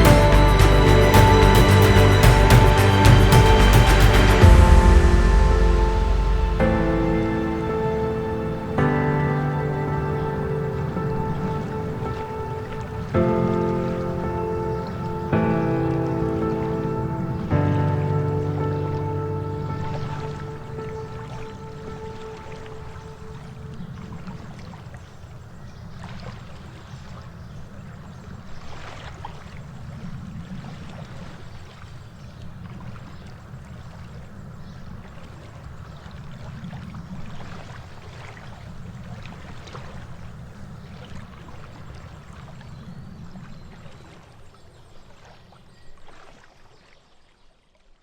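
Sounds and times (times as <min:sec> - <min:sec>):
low rumble: 0:00.0 - 0:24.4
water splashing and trickling: 0:00.0 - 0:48.0.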